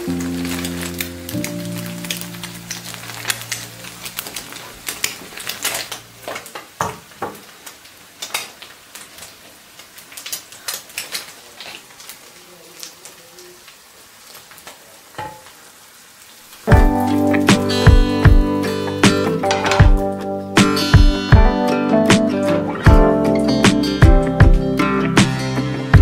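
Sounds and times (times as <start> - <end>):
low music tones: 0.0 - 4.2, 16.7 - 26.0
faint steady sizzle: 0.0 - 26.0.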